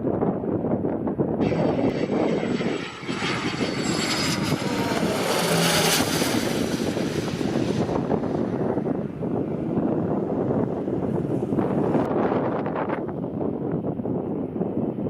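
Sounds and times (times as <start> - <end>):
wind rumbling on microphone: 0.0 - 15.0
high engine whine: 1.4 - 12.1
aircraft engines passing: 1.4 - 13.5.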